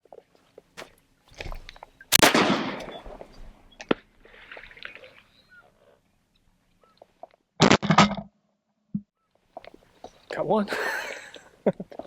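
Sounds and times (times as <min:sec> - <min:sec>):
shotgun shot: 0:02.1 - 0:03.0.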